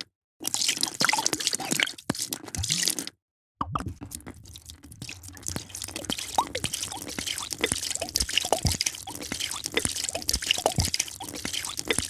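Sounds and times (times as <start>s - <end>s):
liquid pouring and splashing: 0.5s - 12.0s
bubbly plops: 3.6s - 12.0s.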